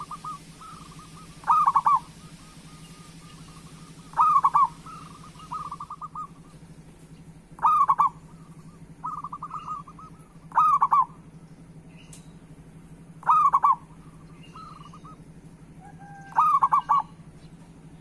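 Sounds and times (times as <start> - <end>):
dove cooing: 0.0 - 6.8, 7.5 - 11.5, 13.1 - 18.0
loud rolling dove call: 0.0 - 6.8, 7.4 - 11.5, 12.9 - 17.9.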